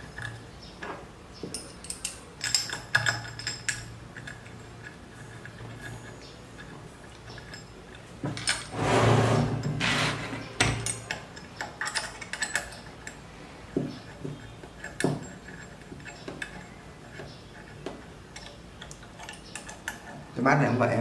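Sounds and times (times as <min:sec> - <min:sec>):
metal parts clicking and clinking: 0:00.0 - 0:08.8, 0:09.4 - 0:13.3, 0:14.0 - 0:20.3.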